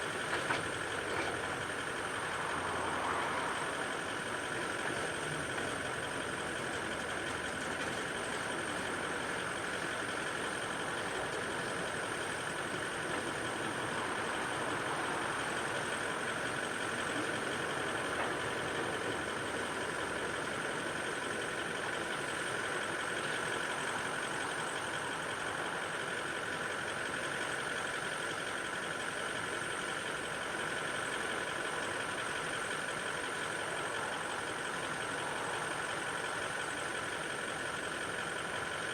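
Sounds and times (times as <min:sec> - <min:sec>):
vehicle engine idling: 0:00.0 - 0:38.9.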